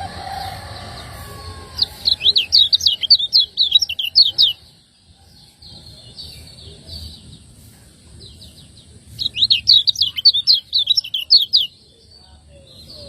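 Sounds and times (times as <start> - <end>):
white-eye chirping: 0.0 - 4.7, 9.1 - 11.8.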